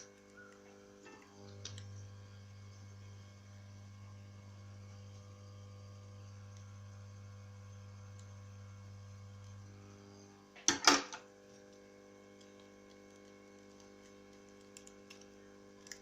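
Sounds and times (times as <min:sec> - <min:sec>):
low electrical mains hum: 0:00.0 - 0:16.0.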